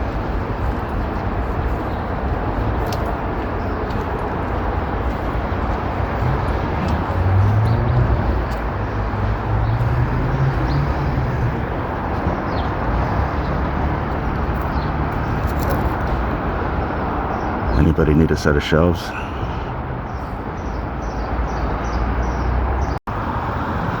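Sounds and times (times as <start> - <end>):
street traffic: 0.0 - 24.0
vehicle engine passing: 5.4 - 16.3.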